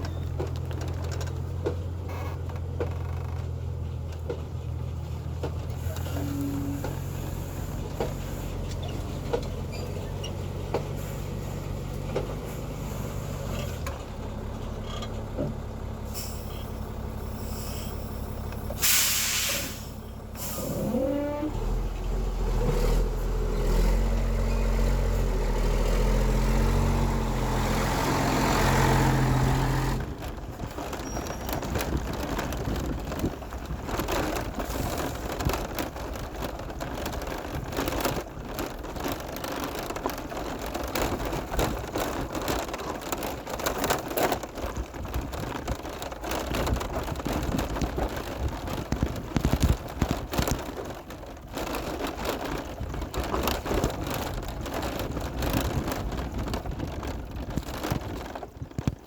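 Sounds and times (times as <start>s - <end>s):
truck diesel engine running: 0.0s - 59.0s
air brake hiss: 17.3s - 18.1s, 18.8s - 20.9s.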